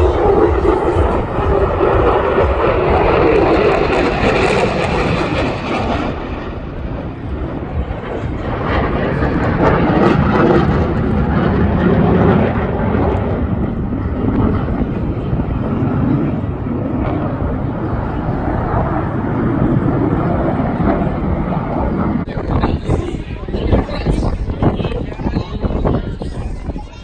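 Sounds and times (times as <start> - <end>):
airplane flying past: 0.0 - 26.9.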